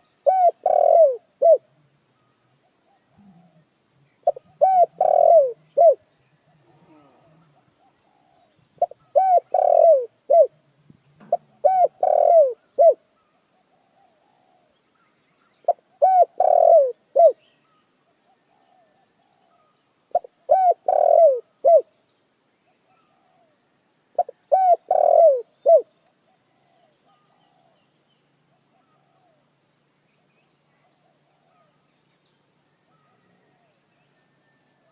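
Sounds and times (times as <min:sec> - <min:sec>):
dove cooing: 0:00.0 - 0:01.9, 0:02.6 - 0:14.8, 0:15.6 - 0:21.9, 0:22.9 - 0:27.9, 0:28.5 - 0:29.5, 0:30.7 - 0:31.8, 0:32.9 - 0:34.4.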